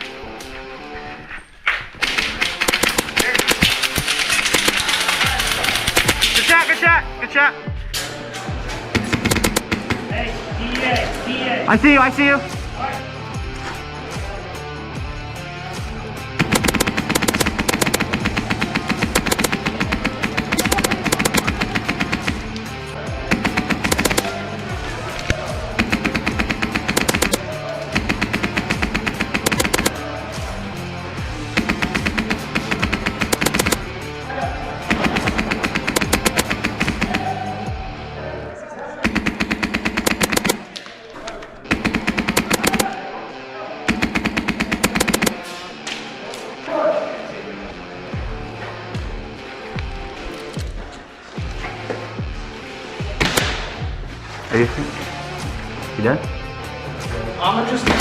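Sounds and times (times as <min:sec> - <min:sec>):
airsoft guns firing on full auto: 0:02.0 - 0:06.5, 0:09.0 - 0:10.1, 0:16.4 - 0:22.6, 0:23.3 - 0:24.4, 0:25.8 - 0:30.0, 0:31.5 - 0:33.9, 0:34.9 - 0:37.5, 0:39.0 - 0:40.7, 0:41.7 - 0:43.0, 0:43.9 - 0:45.4.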